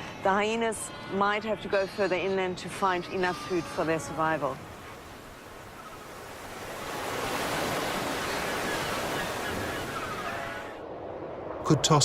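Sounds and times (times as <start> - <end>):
ocean wave washing in: 6.1 - 11.4.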